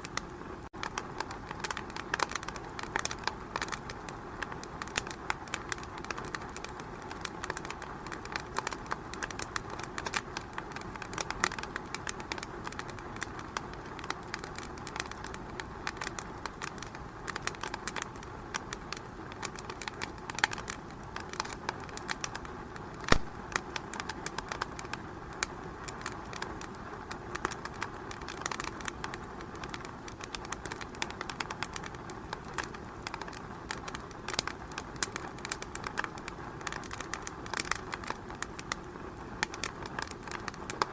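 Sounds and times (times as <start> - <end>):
fire crackling in fireplace: 0.0 - 40.9
hiss of flames: 0.0 - 40.9
loud pop of fire: 23.0 - 23.5.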